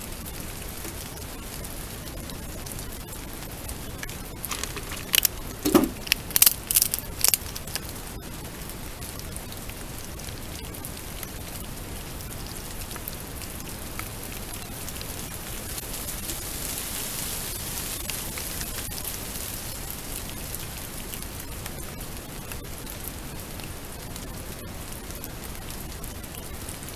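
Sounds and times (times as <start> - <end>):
pouring rain: 0.0 - 26.9
sharp knocks: 5.6 - 6.1.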